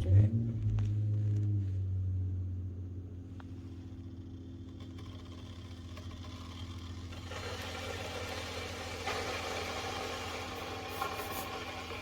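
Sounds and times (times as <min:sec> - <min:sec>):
electric kettle heating water: 0:04.5 - 0:12.0.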